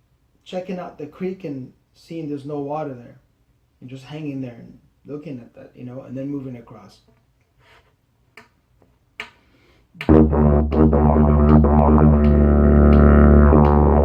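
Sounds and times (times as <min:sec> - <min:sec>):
didgeridoo drone: 0:10.1 - 0:14.0.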